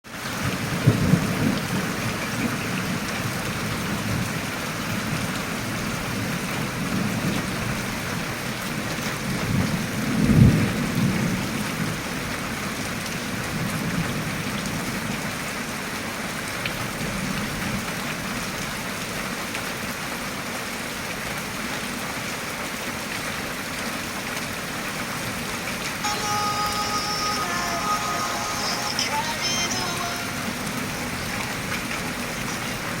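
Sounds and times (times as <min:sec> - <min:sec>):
steady rain falling: 0:00.0 - 0:33.0
low thunder rumbles: 0:00.4 - 0:08.1.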